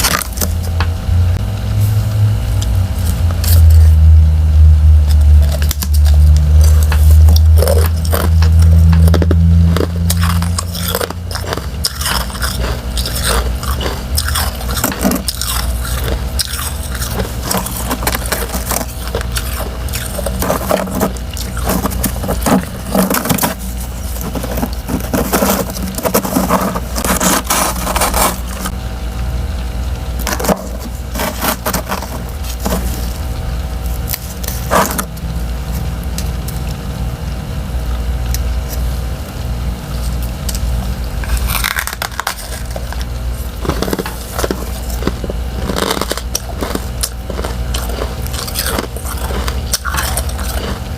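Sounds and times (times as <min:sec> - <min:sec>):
frost chunks crunching: 0:00.0 - 0:00.8, 0:05.1 - 0:28.8, 0:30.2 - 0:36.8, 0:40.0 - 0:50.9
low rumble: 0:00.0 - 0:34.2.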